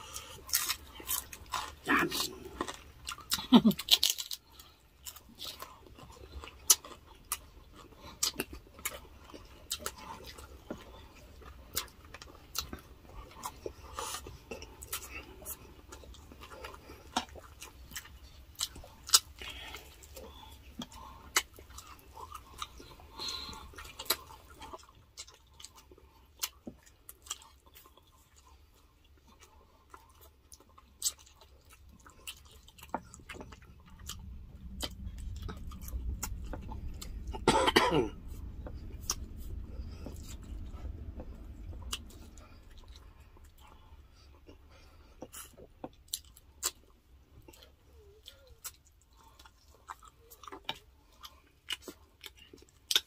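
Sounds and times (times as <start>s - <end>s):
person chewing food: 0.0s - 53.0s
person coughing or humming: 37.2s - 38.3s.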